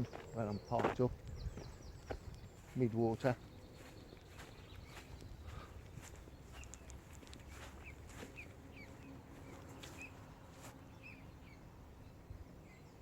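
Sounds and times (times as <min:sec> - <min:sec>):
low rumble of wind: 0:00.0 - 0:13.0
small birds chirping: 0:00.0 - 0:13.0
faint ticks: 0:05.2 - 0:07.6.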